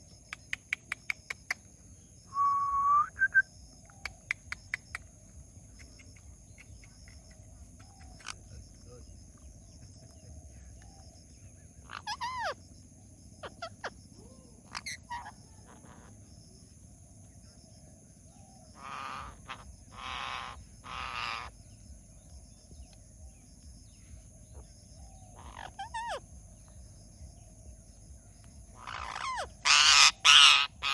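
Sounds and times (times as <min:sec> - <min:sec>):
parrot harsh raspy squawks: 0:11.8 - 0:12.6, 0:14.7 - 0:16.1, 0:18.8 - 0:21.5, 0:25.4 - 0:26.2, 0:28.8 - 0:30.9.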